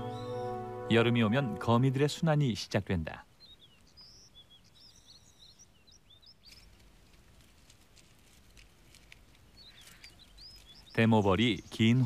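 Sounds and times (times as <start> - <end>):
faint bird chirps: 0.0 - 2.6, 3.2 - 6.8, 9.5 - 12.0.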